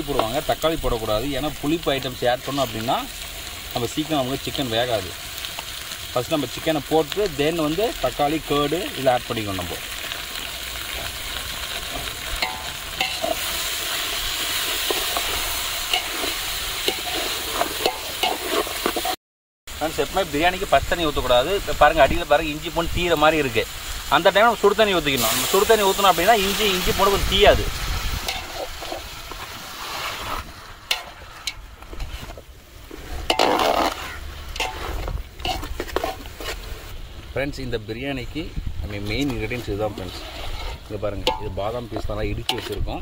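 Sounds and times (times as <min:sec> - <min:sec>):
oil sizzling in a pot: 0:00.0 - 0:43.0
utensil clinking and scraping pot: 0:11.8 - 0:19.2, 0:28.2 - 0:36.8, 0:39.0 - 0:43.0.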